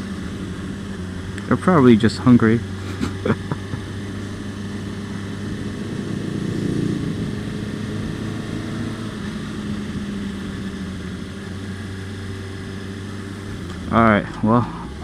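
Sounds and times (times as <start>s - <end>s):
rush of noise: 2.7s - 10.3s.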